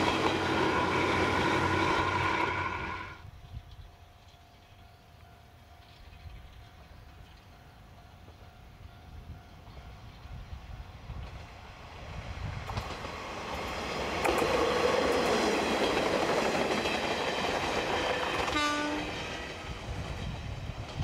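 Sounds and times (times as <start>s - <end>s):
diesel railcar passing: 0.0s - 21.0s
train horn blast: 18.4s - 19.3s.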